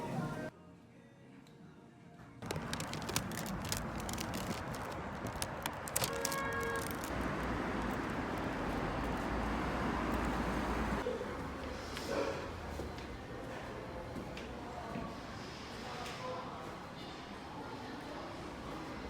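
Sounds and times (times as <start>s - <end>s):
road traffic rush: 2.4s - 12.7s.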